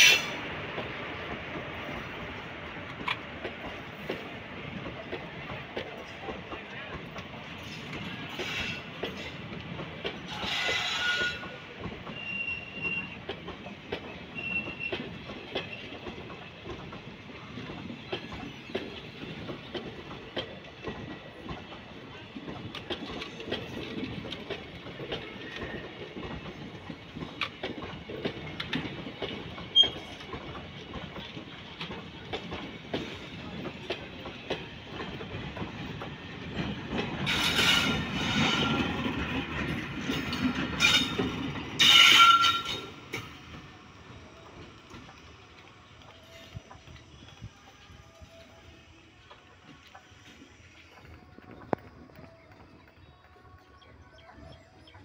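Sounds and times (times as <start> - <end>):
train coaches rumbling past: 0.0 - 55.0.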